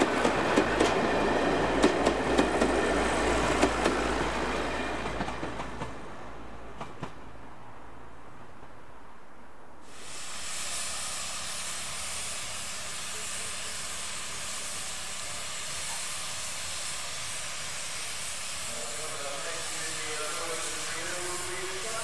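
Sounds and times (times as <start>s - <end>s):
steam hissing from engine: 9.8s - 22.0s.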